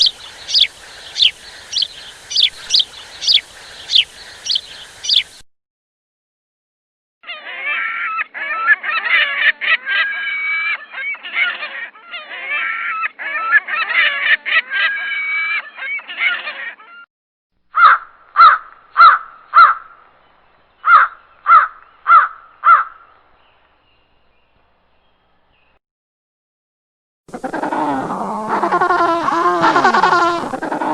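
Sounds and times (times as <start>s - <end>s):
flock of birds honking: 28.5s - 30.9s.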